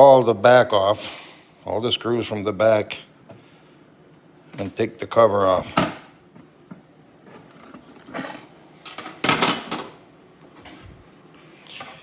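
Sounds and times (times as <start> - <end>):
knocks scrapes and rattles: 7.2 - 9.5.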